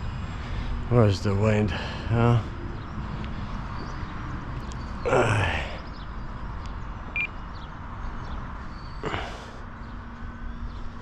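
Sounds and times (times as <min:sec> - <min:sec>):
steady background noise: 0:00.0 - 0:11.0
short electronic beep: 0:07.2 - 0:07.4
man sighing: 0:09.0 - 0:09.5
breath: 0:09.0 - 0:09.6.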